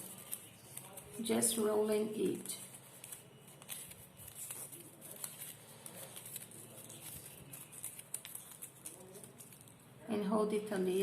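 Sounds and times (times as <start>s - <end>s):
paper rustling and crinkling: 0.0s - 10.1s.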